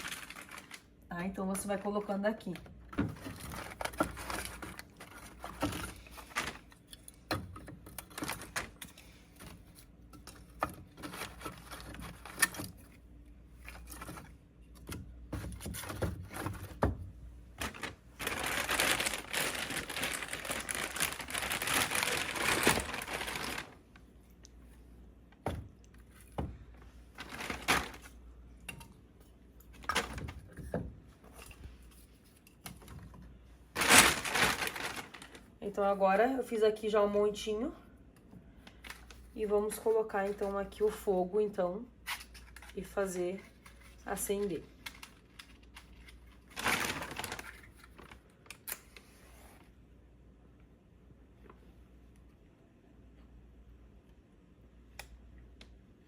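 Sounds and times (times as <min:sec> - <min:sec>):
rustling: 0:00.0 - 0:00.9, 0:17.6 - 0:24.0, 0:27.0 - 0:28.2, 0:33.7 - 0:35.5.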